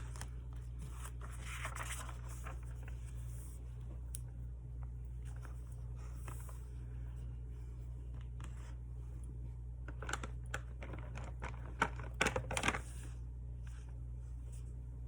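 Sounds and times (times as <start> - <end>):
paper clicks and crinkles: 0.0 - 4.3, 9.9 - 13.0
steady low hum: 0.0 - 15.0.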